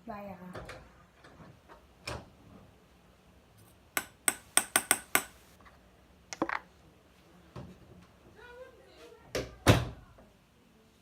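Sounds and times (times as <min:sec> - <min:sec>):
sharp taps on a hard object: 0:04.0 - 0:05.4.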